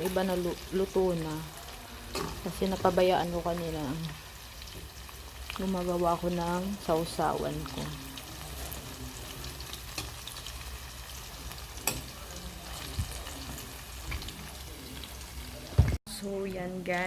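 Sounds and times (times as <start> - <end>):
chicken sizzling in oil: 0.0 - 16.0.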